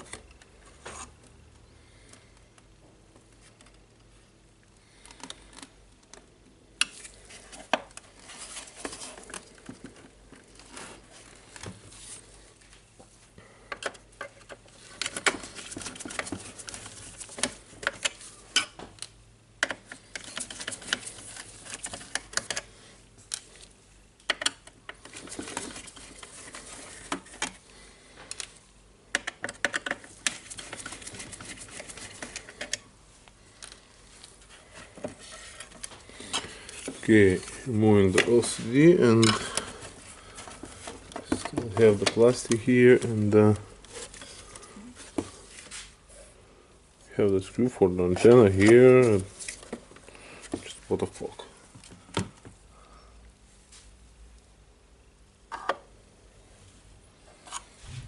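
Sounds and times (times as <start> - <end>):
rustling handling: 6.9 - 13.4, 14.2 - 18.6, 19.8 - 23.9, 24.9 - 28.7, 29.8 - 46.4, 47.1 - 52.5
plastic parts clicking and rattling: 13.7 - 22.7, 23.3 - 32.8.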